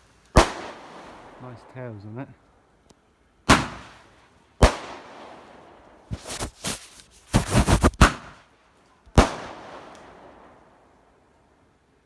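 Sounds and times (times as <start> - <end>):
quick overlapping firework cracks: 0.0 - 11.4
firework bangs: 0.3 - 1.9, 3.5 - 8.5, 9.2 - 10.6.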